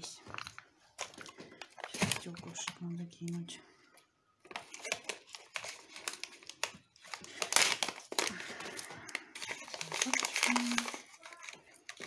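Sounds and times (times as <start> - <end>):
glass chips clicking and crinkling: 4.5 - 12.0.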